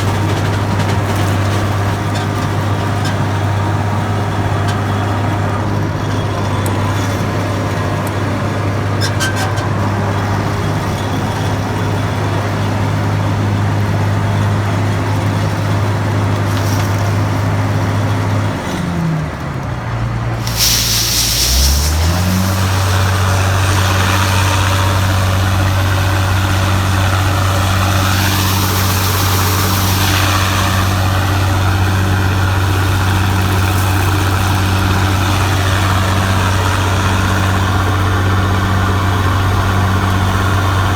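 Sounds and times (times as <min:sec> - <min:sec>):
heavy diesel engine running: 0:00.0 - 0:40.9
burst of hissing: 0:16.4 - 0:17.7, 0:20.4 - 0:36.8.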